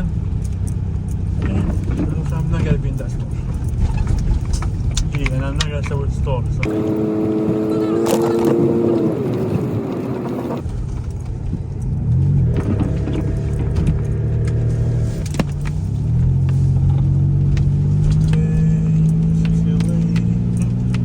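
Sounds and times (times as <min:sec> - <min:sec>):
light clicks and rattles: 0:00.0 - 0:06.7
car engine revving: 0:00.0 - 0:21.0.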